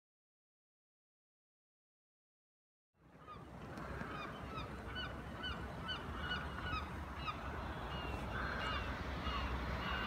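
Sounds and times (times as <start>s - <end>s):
bird calling: 3.1s - 10.0s.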